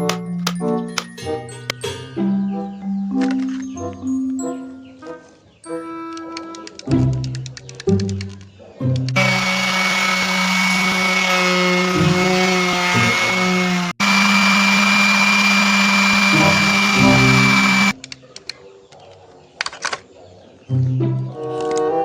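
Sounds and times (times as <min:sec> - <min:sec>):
background music: 0:00.0 - 0:09.2, 0:20.6 - 0:22.0
power drill motor running: 0:09.2 - 0:18.0.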